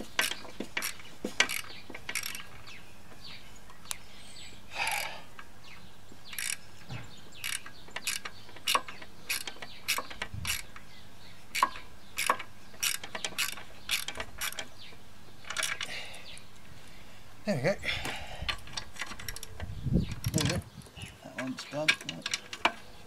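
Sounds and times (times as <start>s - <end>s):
ratchet spanner clicking: 0.2s - 2.5s, 6.3s - 6.6s, 7.4s - 10.7s, 11.5s - 14.7s.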